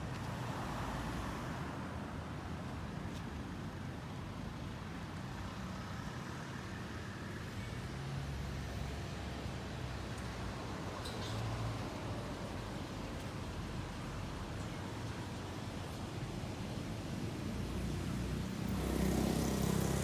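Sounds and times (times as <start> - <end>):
road traffic passing: 10.4 - 20.0.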